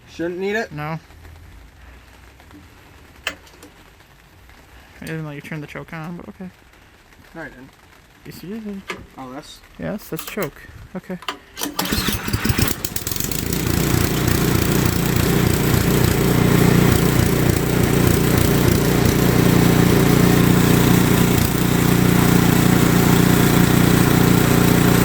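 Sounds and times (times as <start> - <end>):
snowblower engine running: 11.6 - 25.0.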